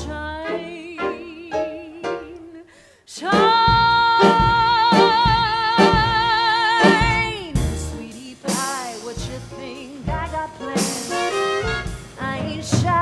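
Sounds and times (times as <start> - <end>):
band playing steady beat: 3.3 - 13.0.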